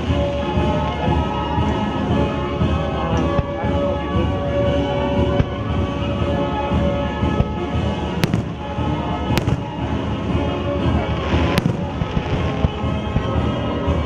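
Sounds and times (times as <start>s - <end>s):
music soundtrack: 0.0s - 14.0s
low fireworks booming: 4.7s - 14.0s
fireworks cracking: 7.4s - 13.7s.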